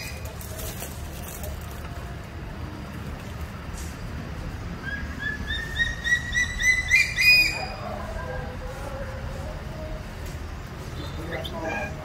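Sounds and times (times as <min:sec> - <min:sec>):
lory calling: 0:11.0 - 0:12.0.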